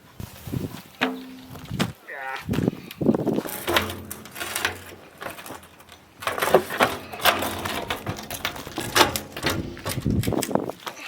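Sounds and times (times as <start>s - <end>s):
objects clicking and knocking: 3.4s - 11.0s.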